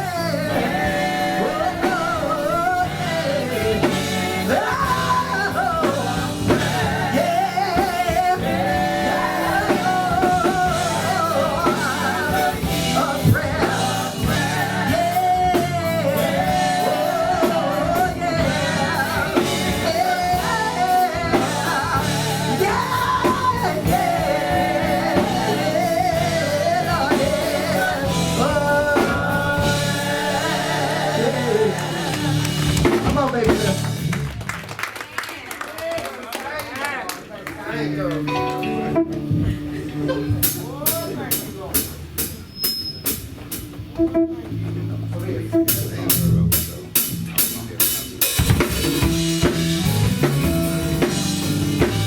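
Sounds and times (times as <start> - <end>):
gospel singing: 0.0 - 34.5, 47.0 - 52.0
guitar: 0.0 - 34.6, 37.4 - 52.0
drums: 0.0 - 35.0, 37.8 - 52.0.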